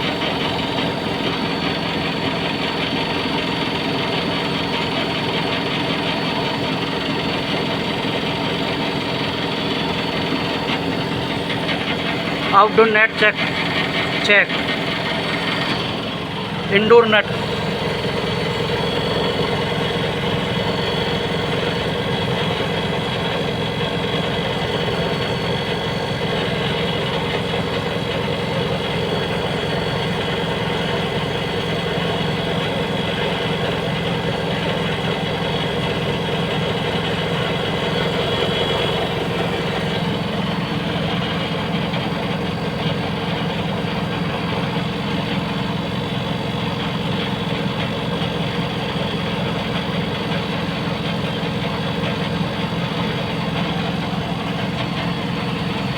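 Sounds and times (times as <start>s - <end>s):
steady tones: 9.5s - 35.2s.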